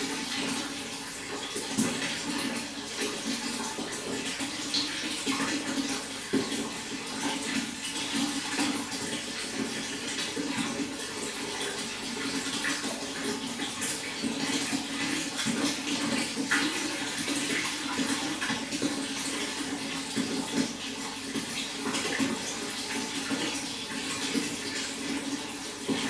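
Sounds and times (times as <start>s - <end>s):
running water splashing: 0.0s - 26.0s.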